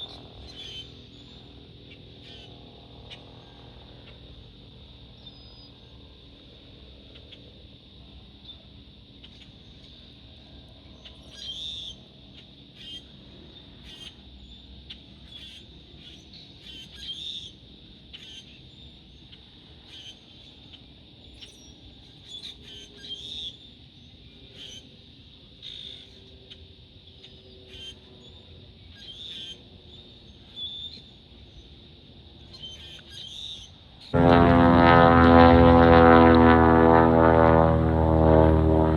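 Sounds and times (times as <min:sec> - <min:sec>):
faint low rumble: 0:34.2 - 0:38.9.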